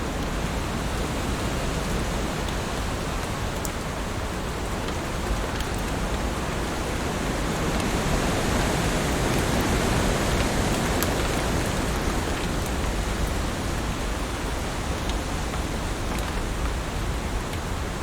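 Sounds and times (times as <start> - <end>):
raindrop ticks: 0.2 - 6.6, 14.5 - 16.8.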